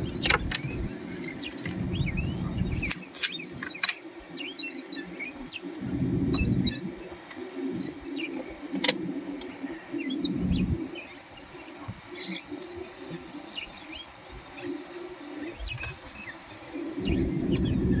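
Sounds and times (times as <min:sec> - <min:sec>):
low rumbling noise: 0:00.0 - 0:02.9, 0:05.4 - 0:07.3, 0:09.1 - 0:11.6, 0:16.7 - 0:18.0
wild birds chirping and trilling: 0:00.0 - 0:18.0.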